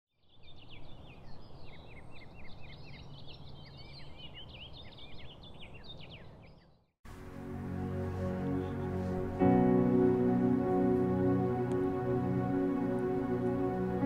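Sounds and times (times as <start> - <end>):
birds chirping: 8.2 - 11.0.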